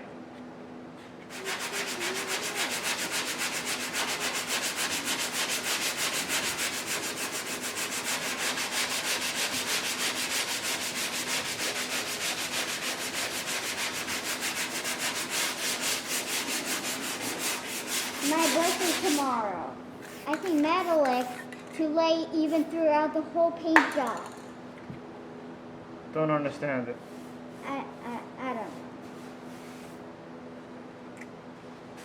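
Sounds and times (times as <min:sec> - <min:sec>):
sanding block strokes: 0:01.3 - 0:19.4, 0:20.1 - 0:21.1.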